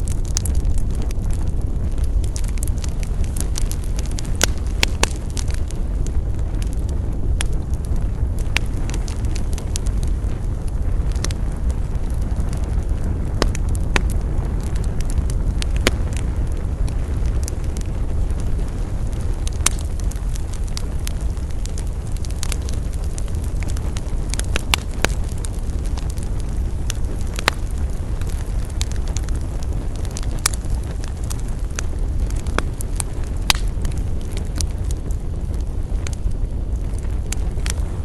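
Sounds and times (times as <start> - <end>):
campfire crackling and popping: 0.0 - 38.0.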